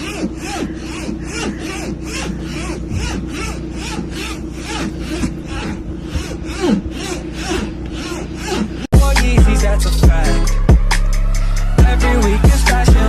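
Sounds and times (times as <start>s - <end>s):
short squeaky sounds: 0.0s - 8.9s
rhythmic rasping strokes: 0.0s - 13.0s
steady low hum: 0.0s - 13.0s.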